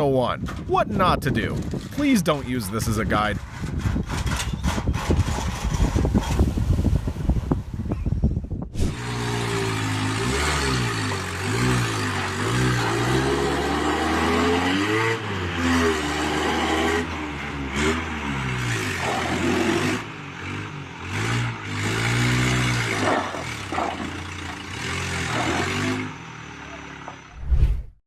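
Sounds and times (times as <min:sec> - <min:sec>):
engine revving: 0:08.8 - 0:26.2.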